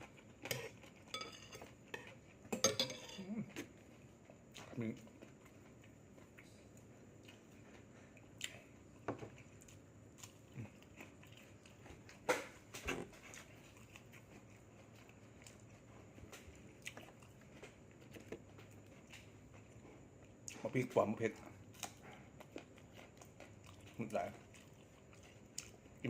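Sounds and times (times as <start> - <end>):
person chewing and biting: 8.3 - 20.6, 21.6 - 26.0.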